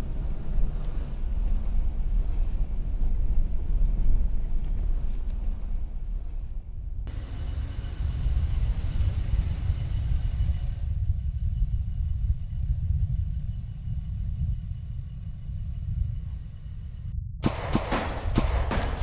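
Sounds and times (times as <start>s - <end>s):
truck engine and road rumble: 0.0s - 17.2s.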